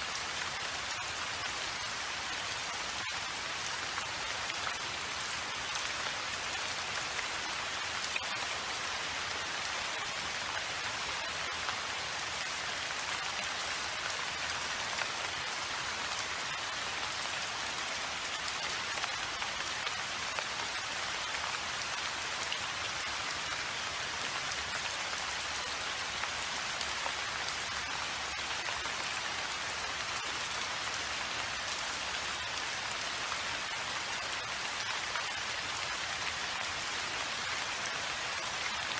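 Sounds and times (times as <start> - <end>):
steady rain hissing: 0.0 - 38.9.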